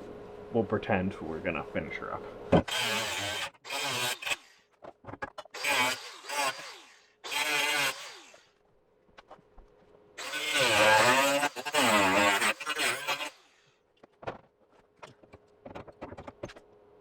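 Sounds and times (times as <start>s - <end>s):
power cutting tool whining on metal: 2.6s - 4.6s, 5.6s - 8.5s, 10.2s - 13.6s.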